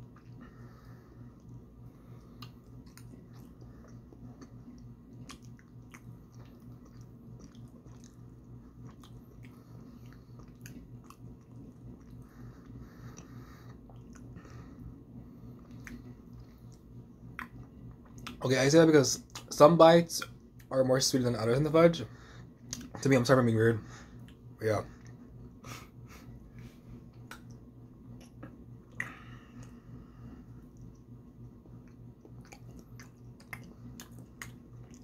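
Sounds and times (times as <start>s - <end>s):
steady low hum: 0.0s - 35.0s
person chewing with wet mouth clicks: 1.3s - 14.4s, 15.6s - 18.4s, 22.6s - 23.0s, 27.1s - 29.8s, 30.7s - 35.0s.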